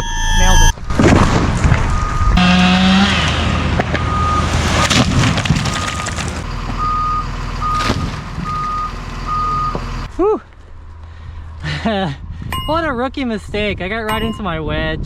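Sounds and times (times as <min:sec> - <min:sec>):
back-up alarm beeping: 0:00.0 - 0:00.8, 0:01.9 - 0:02.6, 0:04.0 - 0:05.0, 0:06.8 - 0:09.9
loader diesel engine running: 0:01.7 - 0:10.1.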